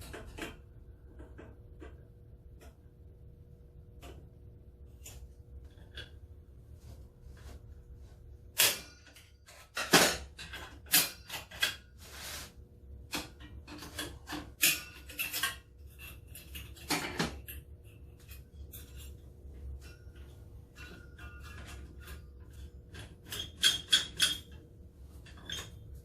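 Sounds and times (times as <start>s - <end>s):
metal parts clinking and scraping: 13.3s - 26.0s.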